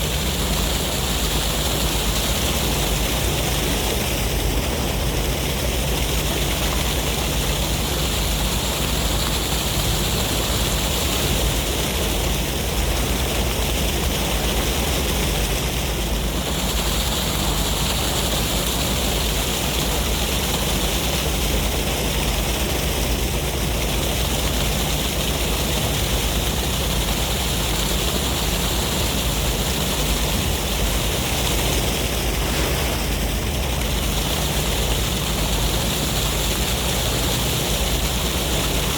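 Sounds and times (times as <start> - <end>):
wind: 0.0 - 38.9
sea waves washing: 23.1 - 38.9.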